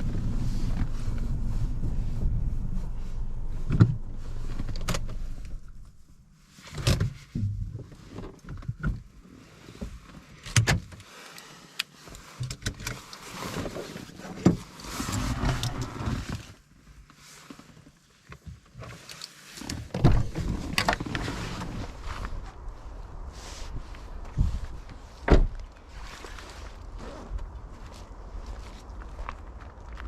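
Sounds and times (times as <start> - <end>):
car rumble from inside: 0.0 - 9.1, 20.0 - 30.0
knocks and thumps: 7.0 - 7.9.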